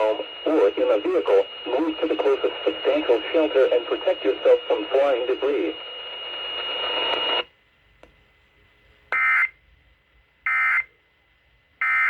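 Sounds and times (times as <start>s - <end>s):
radio hiss: 0.0s - 7.4s.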